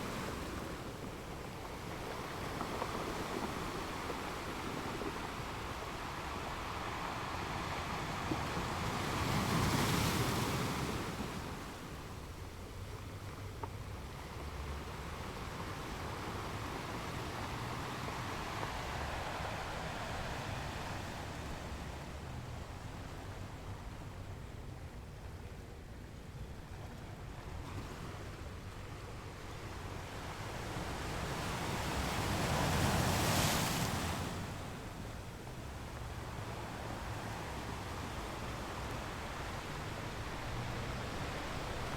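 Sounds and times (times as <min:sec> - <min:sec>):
ocean waves breaking: 0:00.0 - 0:24.4, 0:27.5 - 0:41.9
ocean wave breaking: 0:15.4 - 0:22.9, 0:30.7 - 0:41.9.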